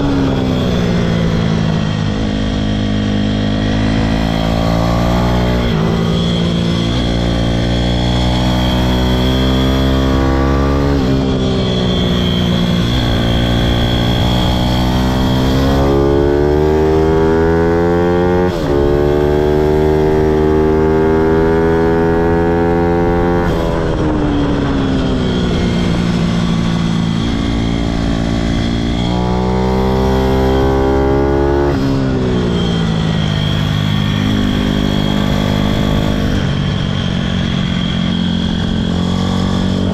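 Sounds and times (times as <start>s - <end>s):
pit bike engine revving: 0.0s - 24.0s, 25.4s - 39.9s.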